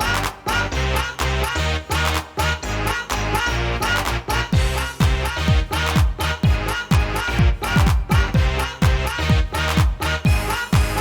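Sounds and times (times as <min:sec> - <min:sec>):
bass line: 0:00.0 - 0:11.0
synth chords: 0:00.0 - 0:11.0
thudding kick drum: 0:04.6 - 0:11.0.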